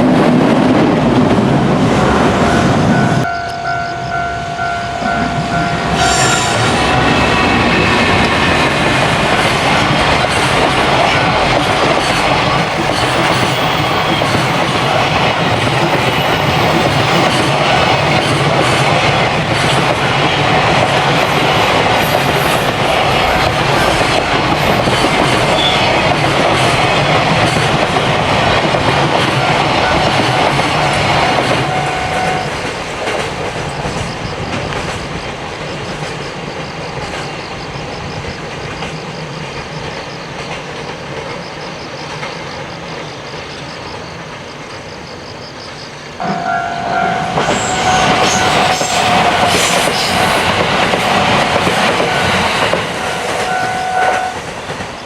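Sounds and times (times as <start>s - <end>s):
train wheels clattering on track: 0.0s - 55.0s
steady held tone: 2.3s - 7.6s, 46.2s - 50.6s.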